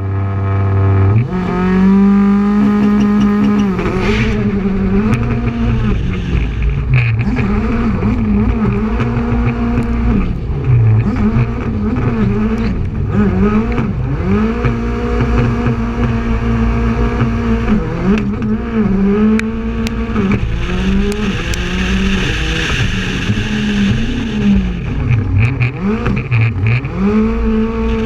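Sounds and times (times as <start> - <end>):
rally car engine running hard: 0.0 - 28.0.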